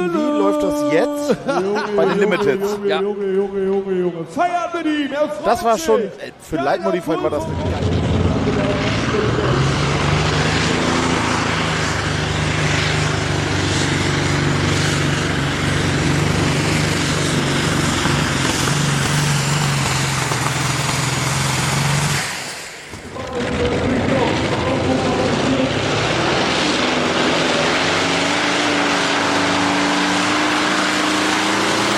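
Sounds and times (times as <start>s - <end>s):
tractor engine under load: 7.6s - 26.0s.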